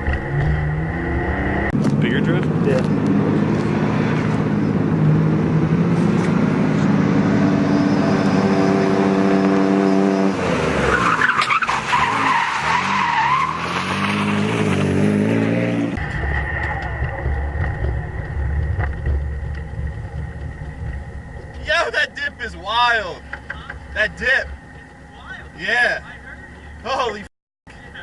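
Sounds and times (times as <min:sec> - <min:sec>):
car engine revving: 0:00.0 - 0:21.5
tyres squealing: 0:10.8 - 0:14.8
steady engine drone: 0:15.9 - 0:28.0.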